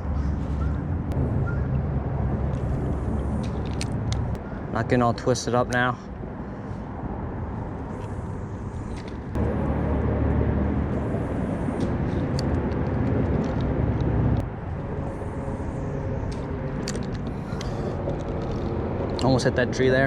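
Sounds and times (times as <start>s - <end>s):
motor vehicle passing: 0.0s - 5.0s, 6.0s - 20.0s.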